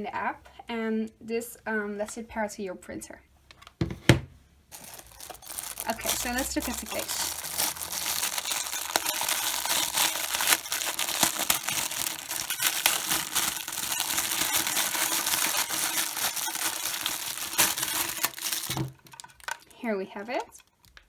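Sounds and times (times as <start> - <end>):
packaging crinkling: 4.7 - 19.8.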